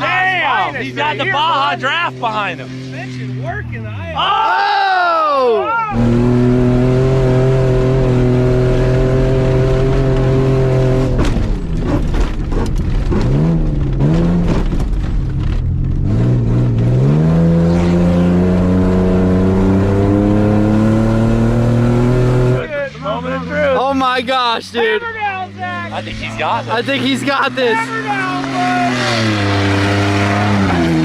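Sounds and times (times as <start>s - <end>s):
truck engine at high revs: 0.0s - 31.0s
knocks over bumps: 11.1s - 16.1s.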